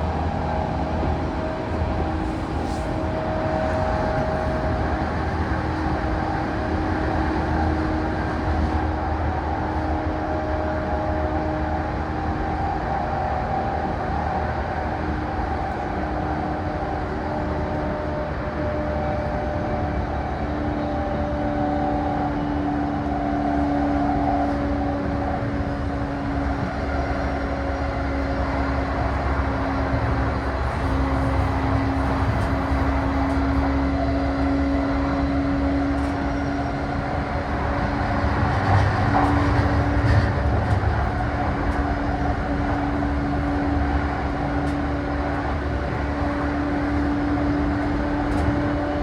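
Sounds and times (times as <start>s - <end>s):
train wheels rumbling on rails: 0.0s - 49.0s
traction motor hum: 24.3s - 49.0s.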